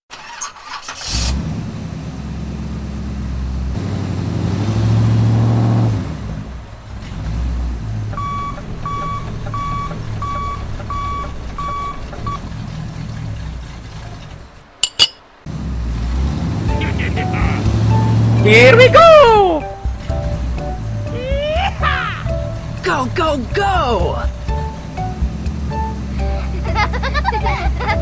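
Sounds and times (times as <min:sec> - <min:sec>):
vehicle engine revving: 0:00.9 - 0:14.8, 0:15.5 - 0:28.0
reversing alarm beeping: 0:08.2 - 0:12.4.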